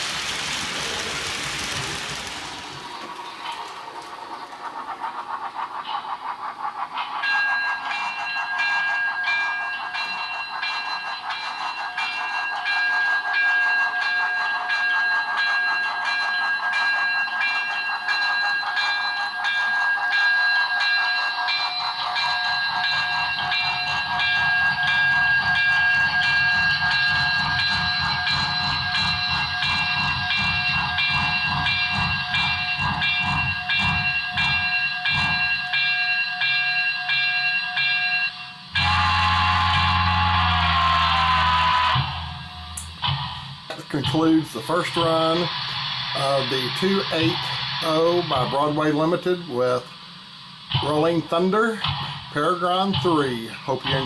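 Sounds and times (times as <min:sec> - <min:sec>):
model steam locomotive chuffing: 0:00.0 - 0:54.0
steady high tones: 0:20.5 - 0:40.2, 0:41.3 - 0:54.0.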